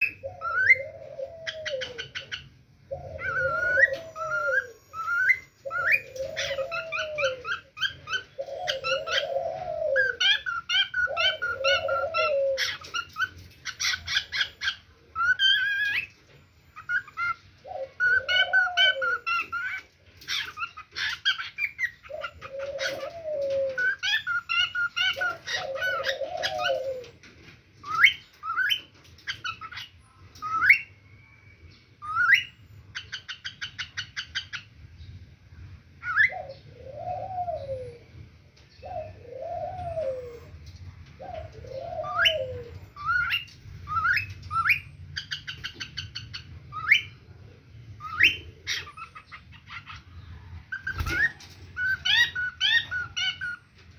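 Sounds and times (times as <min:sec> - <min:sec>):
parrots whistling: 0:00.0 - 0:27.1, 0:27.8 - 0:34.7, 0:41.7 - 0:47.2, 0:48.0 - 0:50.1, 0:50.7 - 0:53.6
parrots chattering: 0:00.0 - 0:31.0, 0:32.0 - 0:34.7, 0:38.9 - 0:53.9
parrot low arched calls: 0:02.9 - 0:12.8.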